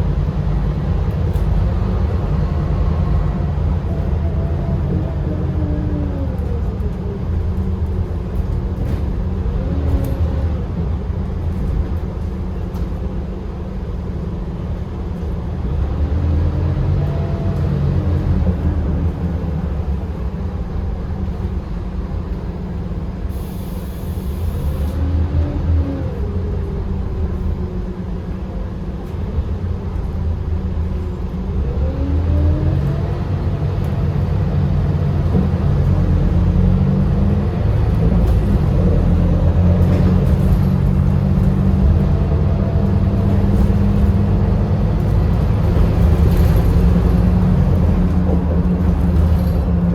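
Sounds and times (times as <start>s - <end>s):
bus engine rumble with whine: 0.0s - 49.9s
short air hiss: 23.3s - 25.0s.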